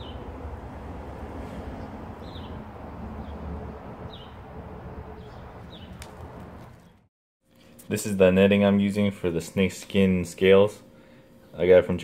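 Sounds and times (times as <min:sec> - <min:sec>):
small bird chirping: 0:01.8 - 0:02.6, 0:04.1 - 0:04.4, 0:05.1 - 0:06.2.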